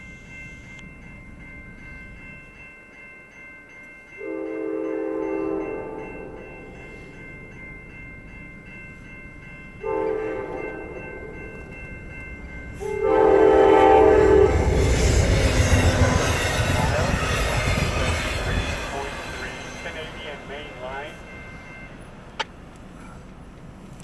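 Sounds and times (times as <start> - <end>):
locomotive horn blasts: 4.2 - 6.4, 9.8 - 10.9, 12.8 - 16.4
wheel noise on rails: 5.5 - 24.0
train rushing past: 9.8 - 24.0.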